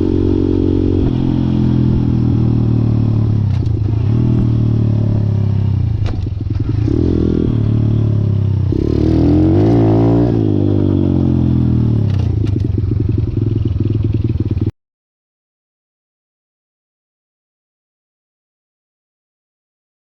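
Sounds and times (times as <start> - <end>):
small motorcycle engine running: 0.0 - 14.7.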